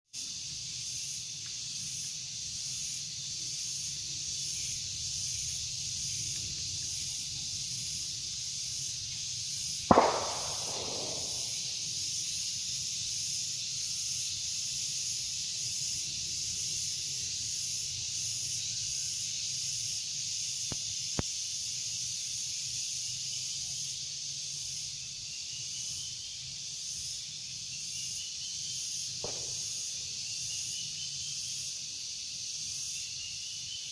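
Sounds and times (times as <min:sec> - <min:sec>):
high-pitched insect chorus: 0:00.1 - 0:33.9
sharp bang: 0:09.9 - 0:11.7.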